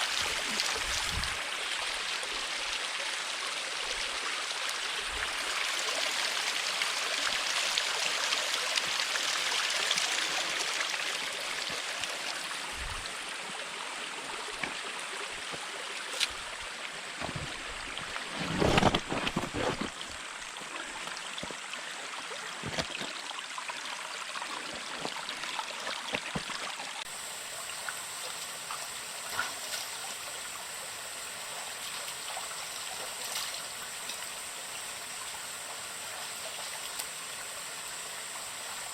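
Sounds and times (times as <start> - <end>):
muffled thumping: 17.2 - 17.7.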